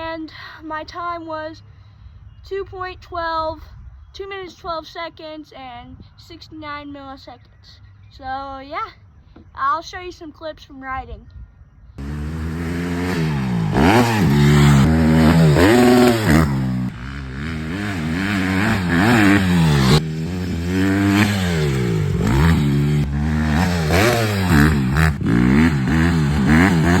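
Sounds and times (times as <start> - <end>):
dirt bike engine revving: 12.0 - 27.0.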